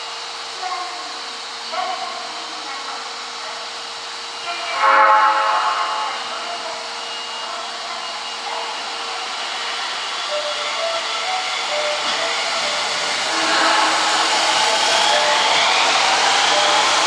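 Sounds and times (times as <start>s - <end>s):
subway train rushing: 0.0s - 17.0s
high wheel squeals: 7.0s - 17.0s.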